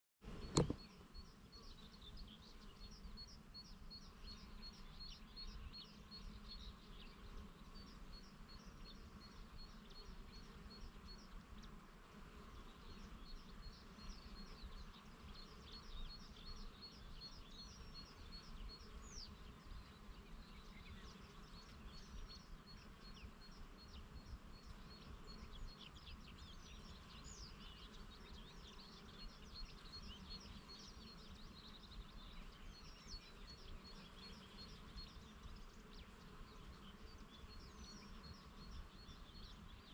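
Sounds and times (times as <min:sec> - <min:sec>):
small birds chirping: 0:00.3 - 0:39.9.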